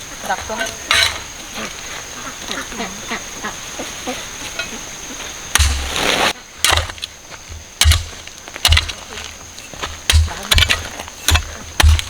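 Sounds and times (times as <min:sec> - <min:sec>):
heavy thud: 0:05.5 - 0:06.9
rustling crash: 0:05.5 - 0:07.0.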